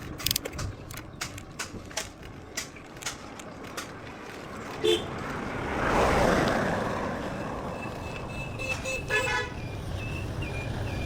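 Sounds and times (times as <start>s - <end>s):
motor vehicle passing: 3.2s - 8.4s
horn beeping: 7.3s - 11.0s.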